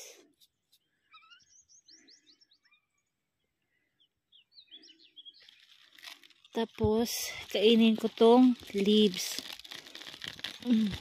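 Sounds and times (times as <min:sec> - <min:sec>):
high bird chirps: 0:00.8 - 0:03.1, 0:03.7 - 0:06.0.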